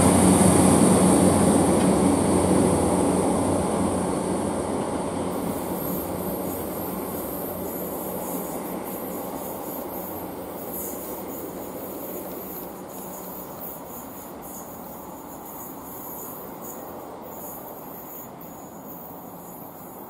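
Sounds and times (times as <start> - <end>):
train engine and wheel rumble: 0.0 - 20.0
high-pitched hiss: 5.3 - 20.0.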